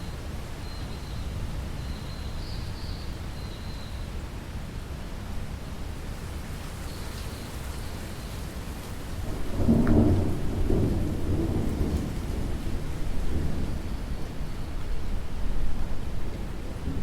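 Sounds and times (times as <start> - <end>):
steady rain falling: 0.1 - 17.0
low rumble of thunder: 9.0 - 17.0.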